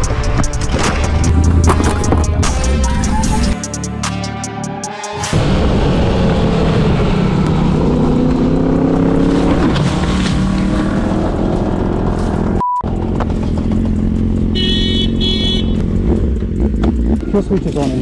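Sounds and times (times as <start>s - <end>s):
motorcycle engine accelerating: 5.3s - 18.0s
road and wind noise: 5.4s - 18.0s
short steady beep: 12.6s - 12.9s.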